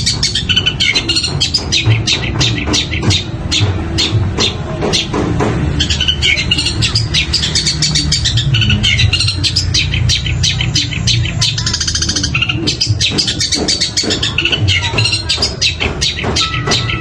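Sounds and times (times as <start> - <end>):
rapid rattling trill: 0.0 - 17.0
bird singing sharp chirps: 5.8 - 17.0.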